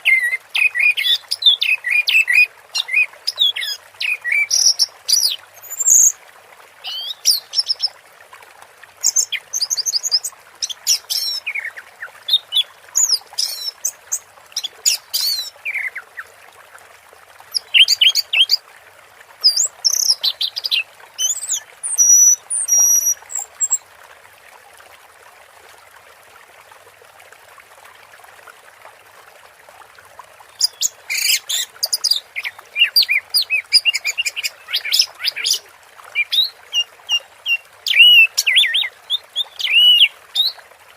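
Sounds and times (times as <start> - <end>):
bird singing chirps and trills: 0.0 - 6.2, 6.8 - 7.9, 9.0 - 16.3, 17.5 - 18.6, 19.5 - 23.8, 30.6 - 40.6
faint steady hiss: 0.0 - 40.9.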